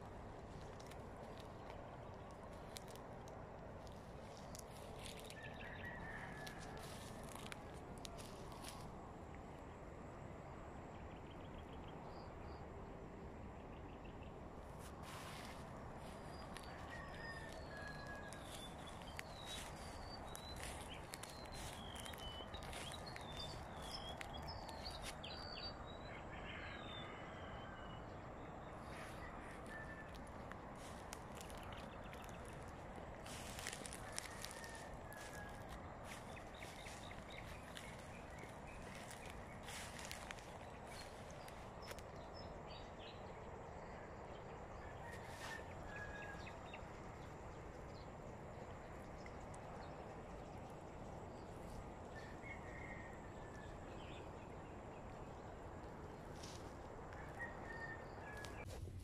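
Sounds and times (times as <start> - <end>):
footsteps crunching dry grass: 0.0 - 9.0, 14.6 - 26.0, 28.3 - 42.2, 55.9 - 59.0
steady low hiss: 0.0 - 44.8
small birds chirping: 13.8 - 27.2, 28.0 - 43.8.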